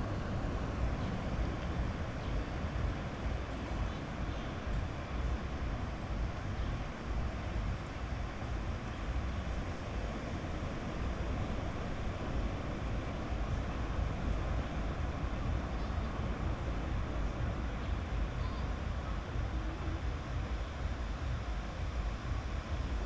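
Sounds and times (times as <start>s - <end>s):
waves on a beach: 0.0s - 23.0s.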